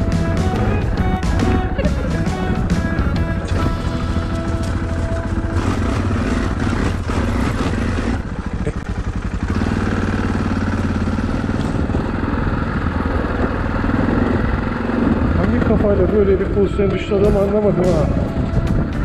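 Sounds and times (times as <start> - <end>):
motorcycle engine running: 0.0 - 19.0
motorcycle knocks and rattles: 0.0 - 19.0.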